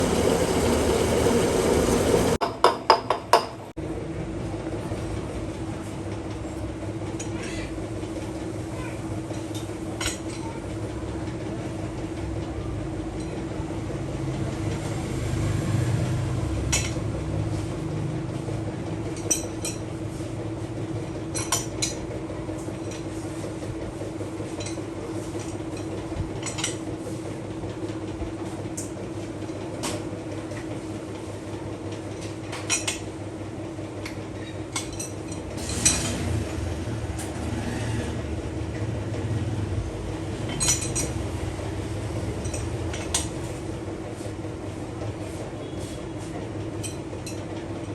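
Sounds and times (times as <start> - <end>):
electric motor humming: 0.0 - 2.4.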